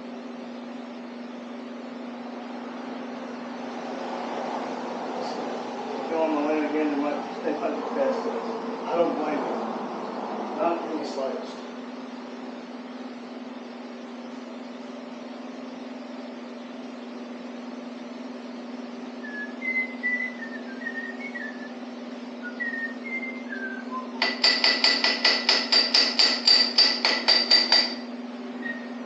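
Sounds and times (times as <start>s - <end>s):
whistled notes: 19.2s - 21.7s, 22.4s - 24.5s
hammer blows on metal: 24.2s - 28.1s.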